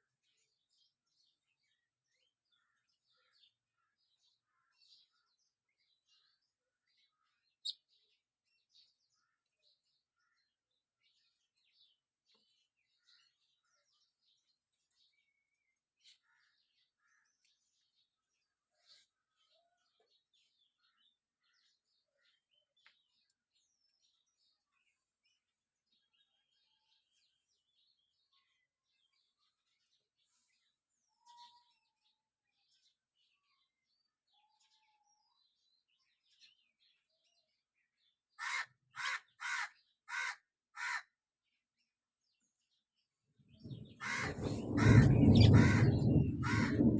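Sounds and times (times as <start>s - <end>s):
small birds chirping: 0.0s - 41.0s, 41.6s - 46.9s
birds chirping: 43.5s - 46.9s.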